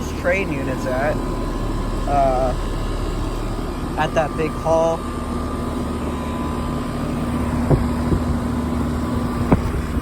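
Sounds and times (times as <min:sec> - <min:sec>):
air conditioner unit humming: 0:00.0 - 0:10.0.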